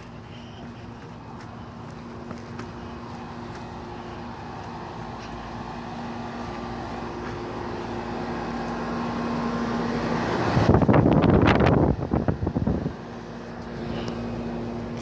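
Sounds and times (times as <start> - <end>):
air conditioner units humming: 0.0 - 15.0
wind buffeting microphone: 10.4 - 13.0.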